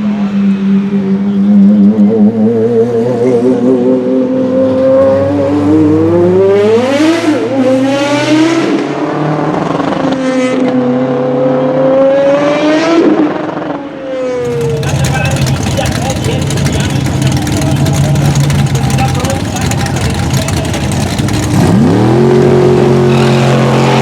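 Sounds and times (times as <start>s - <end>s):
race car engine running hard: 14.4s - 24.0s.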